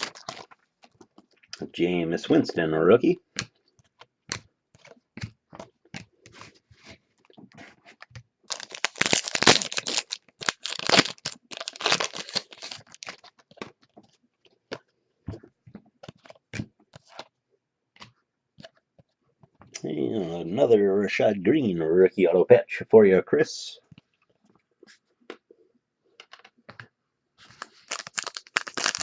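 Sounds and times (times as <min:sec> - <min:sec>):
wrapper tearing and crinkling: 0:00.0 - 0:00.6, 0:08.5 - 0:13.7, 0:27.5 - 0:29.0.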